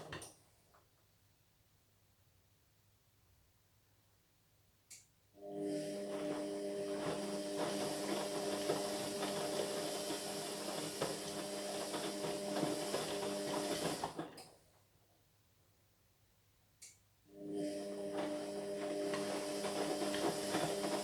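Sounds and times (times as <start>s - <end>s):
washing machine running: 5.4s - 14.4s, 17.4s - 21.0s.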